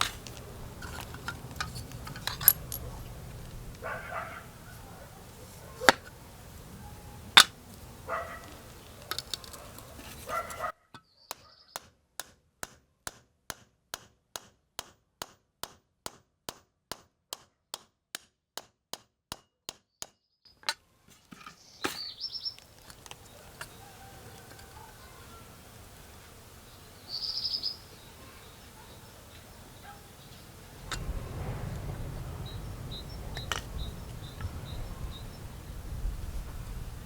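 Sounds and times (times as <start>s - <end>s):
clatter: 0.0s - 3.8s, 30.8s - 34.7s.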